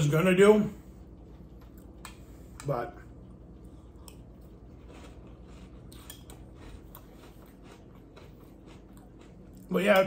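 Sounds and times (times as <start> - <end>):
cereal crunching while chewed: 3.2 - 10.0.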